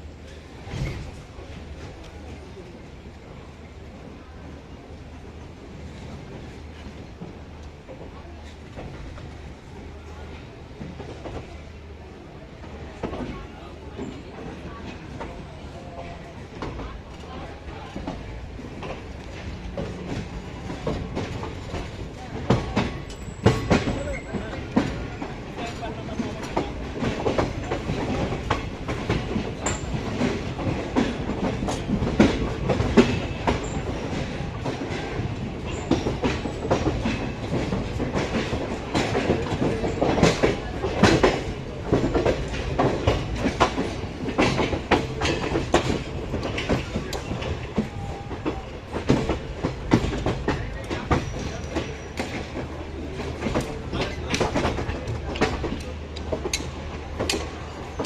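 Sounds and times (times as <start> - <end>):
train coaches rumbling: 0.0 - 58.0
wheels clacking over rail joints: 16.6 - 58.0.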